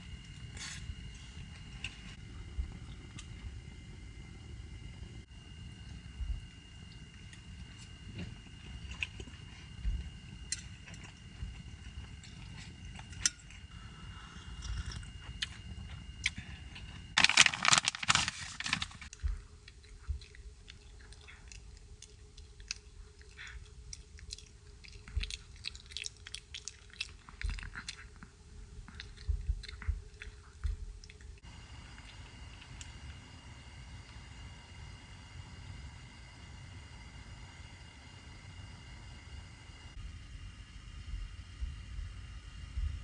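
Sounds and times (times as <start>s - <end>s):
faint steady hum: 0.0s - 43.0s
close-up chewing and crunching: 6.9s - 33.1s.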